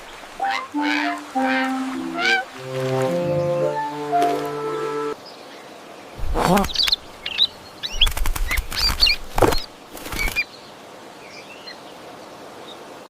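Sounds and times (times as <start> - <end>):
bird wings flapping: 6.2 - 10.4.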